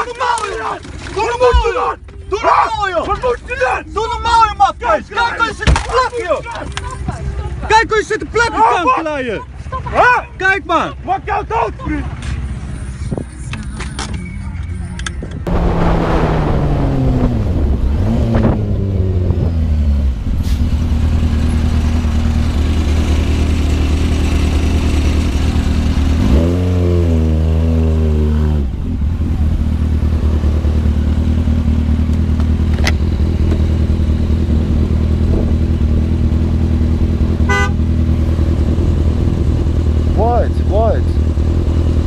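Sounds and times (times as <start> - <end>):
vehicle engine running: 10.8 - 42.0
vehicle horn: 37.4 - 37.9.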